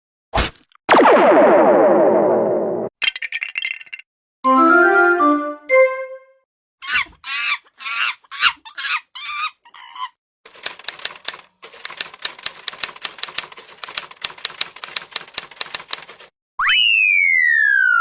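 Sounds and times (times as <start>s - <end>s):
typing on keys: 10.5s - 16.3s.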